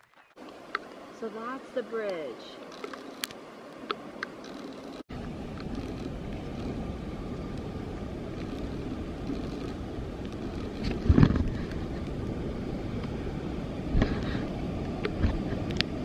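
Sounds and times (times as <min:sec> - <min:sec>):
wind buffeting microphone: 0:04.4 - 0:16.0.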